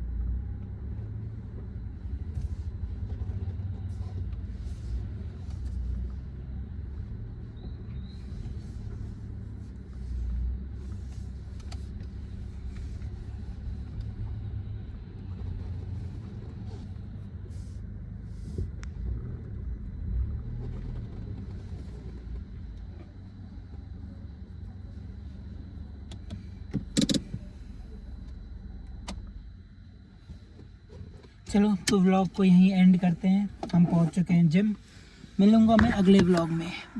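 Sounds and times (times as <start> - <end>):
car engine and road noise: 0.0 - 36.9
sharp clicks: 26.1 - 27.4.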